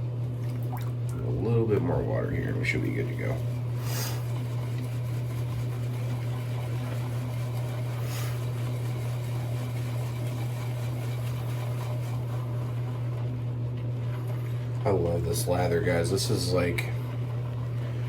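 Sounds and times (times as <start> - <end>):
steady low hum: 0.0 - 18.0
shaving brush whipping lather: 2.5 - 13.1, 14.8 - 17.2.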